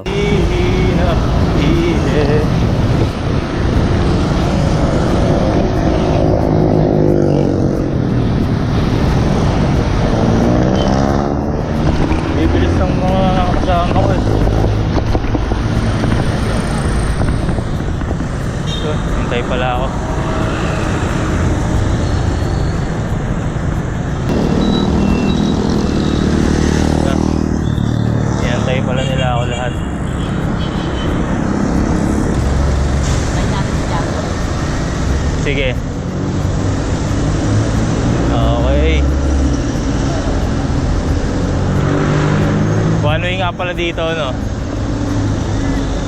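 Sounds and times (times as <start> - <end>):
heavy wind buffeting microphone: 0.0 - 25.9
passing vehicle engine: 0.0 - 46.0
road traffic rumble: 0.0 - 46.0.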